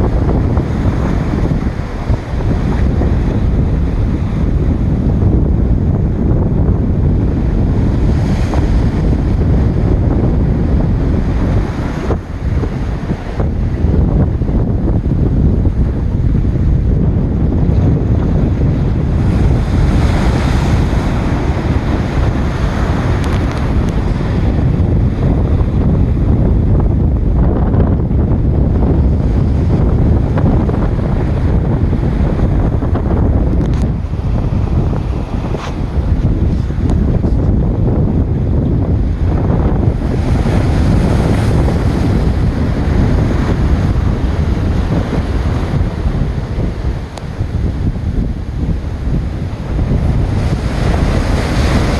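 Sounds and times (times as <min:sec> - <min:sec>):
ocean waves breaking: 0:00.0 - 0:51.9
wind buffeting microphone: 0:00.0 - 0:51.9
surf breaking against rocks: 0:18.1 - 0:25.8, 0:38.8 - 0:51.9.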